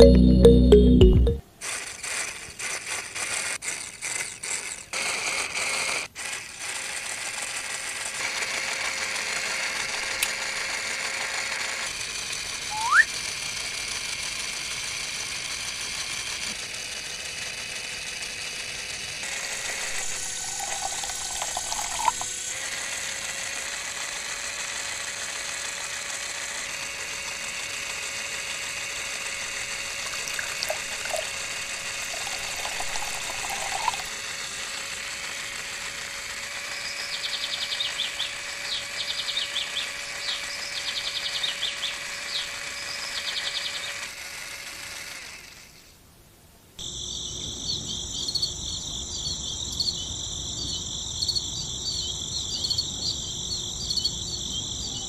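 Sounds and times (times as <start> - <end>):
toy electric motor whirring: 1.6 - 46.0
short rising squeak: 12.7 - 13.1.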